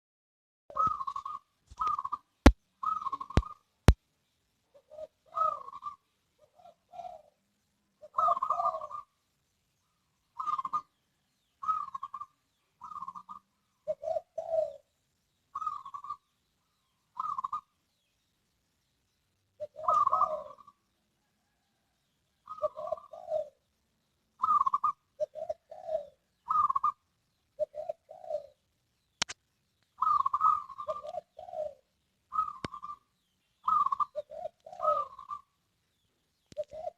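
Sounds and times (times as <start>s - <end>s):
dove cooing: 0.7s - 3.6s, 4.7s - 7.4s, 8.0s - 9.2s, 10.4s - 11.0s, 11.6s - 14.9s, 15.5s - 16.3s, 17.1s - 17.8s, 19.6s - 23.7s, 24.4s - 28.6s, 30.0s - 35.6s, 36.5s - 36.9s
sharp clicks: 29.2s - 29.9s.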